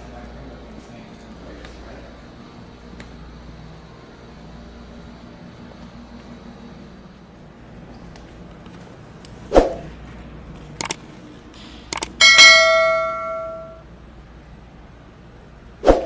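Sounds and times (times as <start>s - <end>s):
sharp clicks: 10.8s - 11.0s, 11.9s - 12.2s
struck metal ringing: 12.2s - 13.8s.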